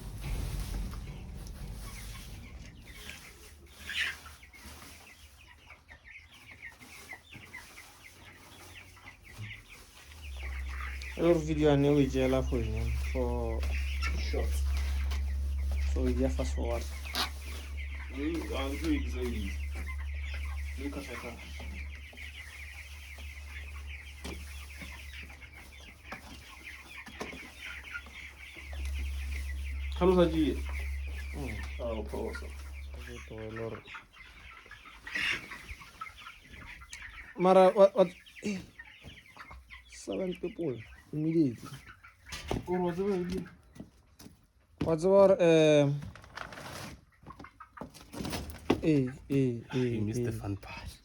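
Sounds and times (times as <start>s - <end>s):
steady low hum: 0.0s - 4.6s, 10.0s - 35.8s
chicks peeping: 0.0s - 51.0s.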